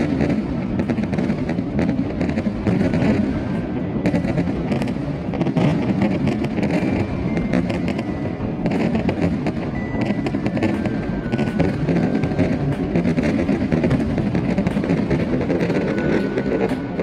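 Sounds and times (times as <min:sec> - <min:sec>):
fireworks crackling and popping: 0:00.0 - 0:17.0
low rumble: 0:00.4 - 0:17.0
music playing: 0:07.0 - 0:17.0.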